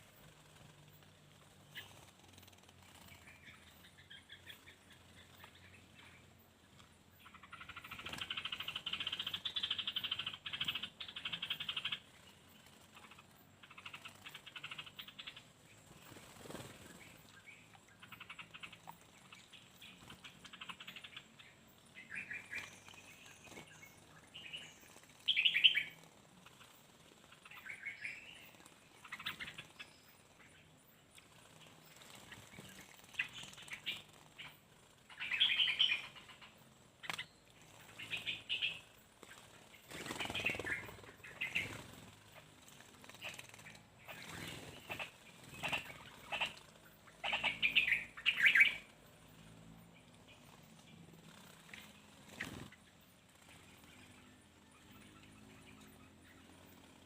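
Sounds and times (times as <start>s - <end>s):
bird wings fluttering and splashing: 0.0s - 5.8s, 6.8s - 21.2s, 21.8s - 49.5s, 50.3s - 54.2s.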